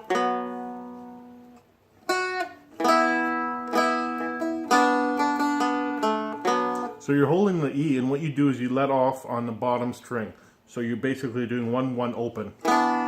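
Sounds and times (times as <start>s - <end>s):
plucked and strummed dulcimer notes: 0.0s - 7.0s, 12.6s - 13.0s.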